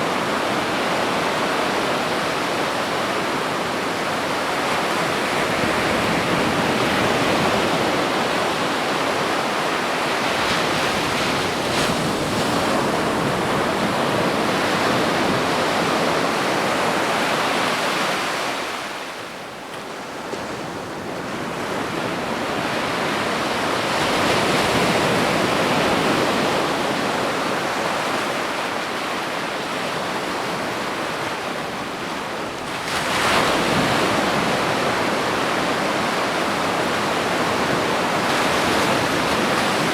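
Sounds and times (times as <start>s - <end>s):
ocean waves breaking: 20.7s - 39.9s.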